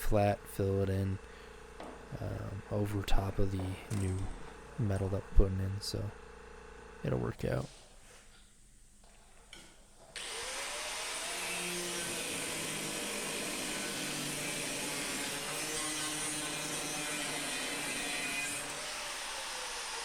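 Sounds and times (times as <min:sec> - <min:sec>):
power tool on sheet metal: 0:10.2 - 0:20.0.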